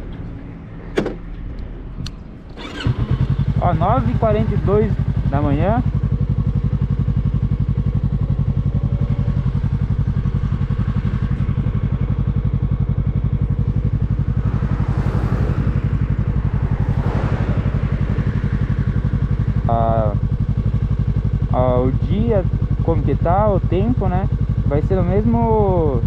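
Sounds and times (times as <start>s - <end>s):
motorcycle engine idling: 2.6s - 26.0s
rush of noise: 13.0s - 19.9s.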